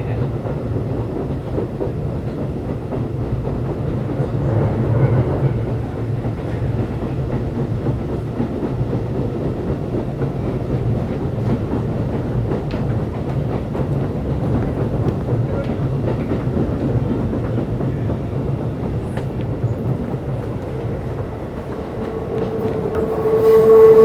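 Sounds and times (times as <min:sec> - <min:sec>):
train wheels rumbling on rails: 0:00.0 - 0:24.0
rail joint clicks: 0:00.1 - 0:24.0
traction motor hum: 0:20.4 - 0:24.0.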